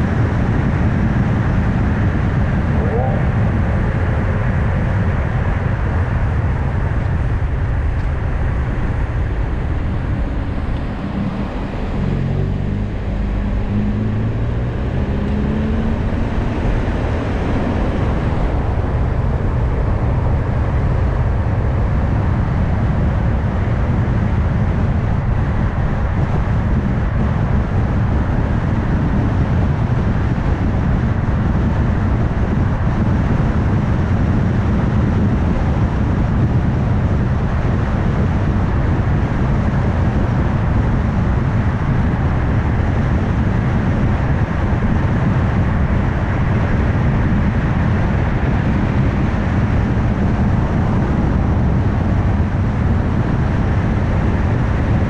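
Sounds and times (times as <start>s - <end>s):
tyre and road rumble: 7.8s - 29.6s
car engine accelerating: 7.9s - 24.0s.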